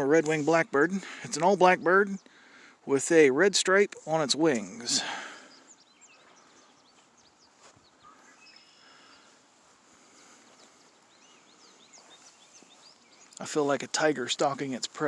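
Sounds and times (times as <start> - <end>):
faint bird chirps: 5.0 - 13.4.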